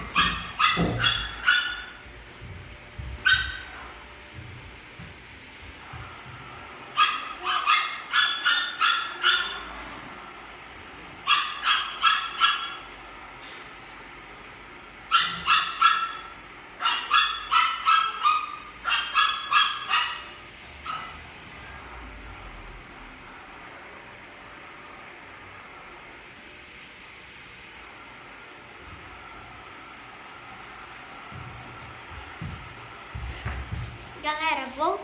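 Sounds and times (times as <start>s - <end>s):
dog barking high-pitched: 0.0s - 2.0s, 3.2s - 3.8s, 7.0s - 9.7s, 11.2s - 12.9s, 15.1s - 21.2s.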